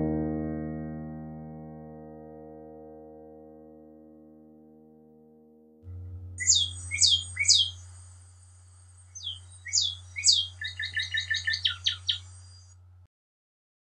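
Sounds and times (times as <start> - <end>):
songbird whistling: 6.4 - 8.2, 8.8 - 12.7.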